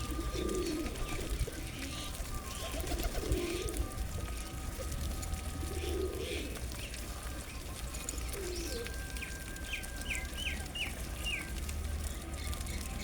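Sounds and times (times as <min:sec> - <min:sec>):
pigeons cooing: 0:00.0 - 0:07.2, 0:08.0 - 0:11.4
small birds chirping: 0:05.8 - 0:13.0.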